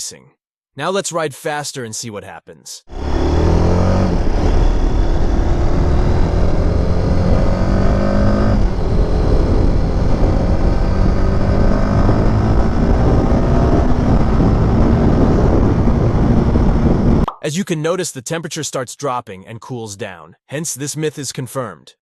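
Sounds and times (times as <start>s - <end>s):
motorcycle engine accelerating: 2.9s - 17.3s.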